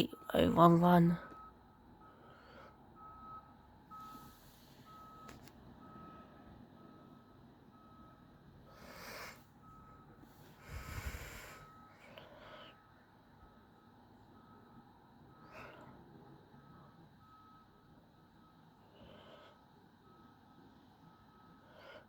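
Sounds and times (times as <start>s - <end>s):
reversing alarm beeping: 0.0s - 22.0s
rumble: 4.9s - 22.0s.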